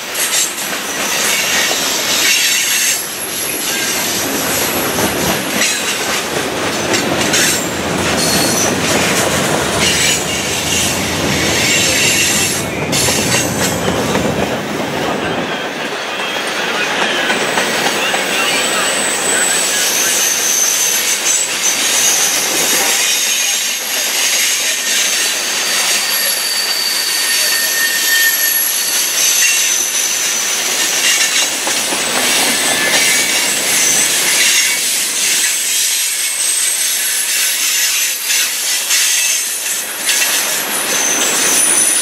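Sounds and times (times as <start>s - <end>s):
freight train wheels rattling: 0.0s - 42.0s
high-pitched wheel squeals: 9.8s - 14.0s, 18.4s - 31.5s, 32.4s - 42.0s.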